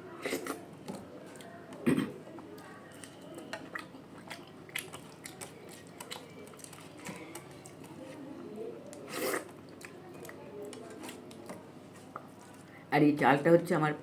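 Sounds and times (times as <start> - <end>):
person chewing food: 2.4 - 8.2, 8.9 - 12.7.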